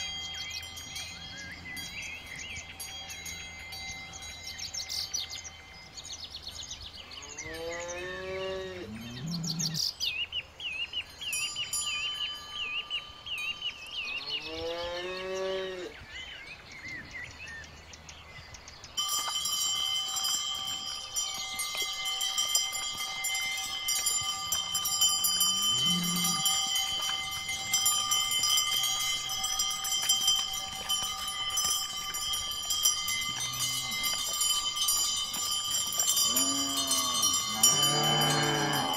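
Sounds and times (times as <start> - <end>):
cowbells ringing: 0.0 - 9.8, 11.0 - 14.6, 18.9 - 38.9
cows mooing: 7.2 - 9.8, 14.3 - 16.0, 25.2 - 26.6, 36.2 - 38.9.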